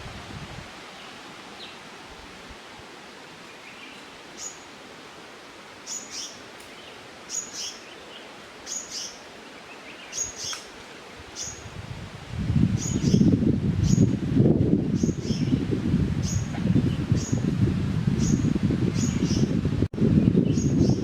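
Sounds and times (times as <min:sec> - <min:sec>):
outdoor background hiss: 0:00.0 - 0:21.0
bird chirping: 0:11.4 - 0:11.7.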